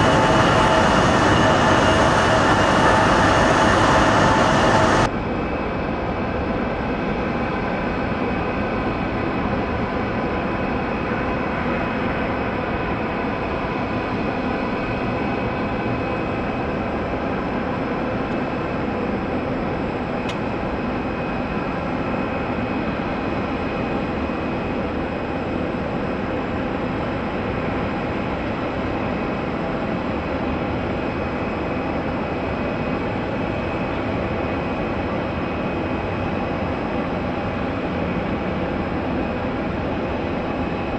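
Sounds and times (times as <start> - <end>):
jet engines running: 0.0 - 40.9
short click: 20.2 - 20.8.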